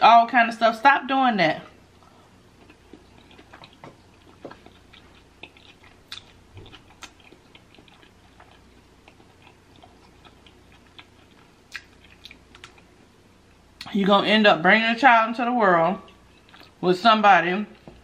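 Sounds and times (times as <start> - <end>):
wet chewing: 2.5 - 13.0, 16.0 - 16.8
mouth clicks and smacks: 11.7 - 12.9.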